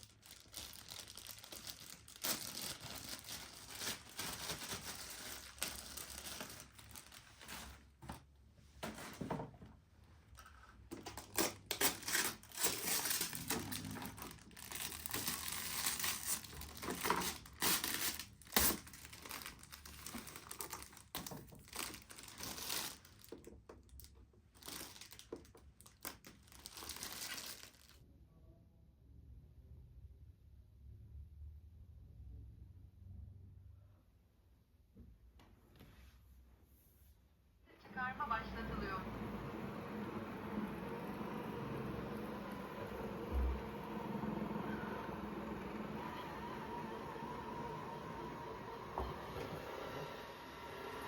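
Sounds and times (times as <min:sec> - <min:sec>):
packaging crumpled and torn: 0:00.0 - 0:07.8, 0:10.4 - 0:28.0.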